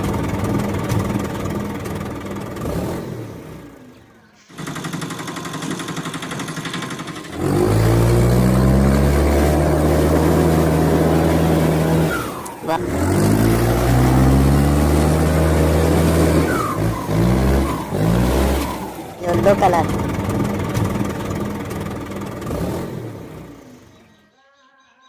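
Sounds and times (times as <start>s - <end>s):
engine droning: 0.0s - 24.2s
fast rattling: 4.5s - 8.8s, 18.9s - 22.6s.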